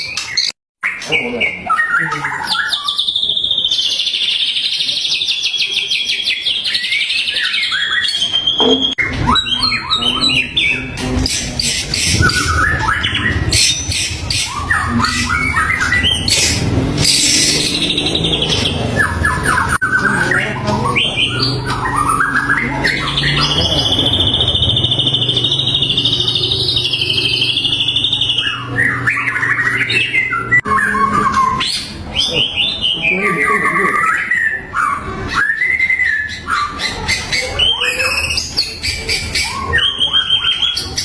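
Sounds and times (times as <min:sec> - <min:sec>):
bird singing whistles and trills: 0:00.0 - 0:41.0.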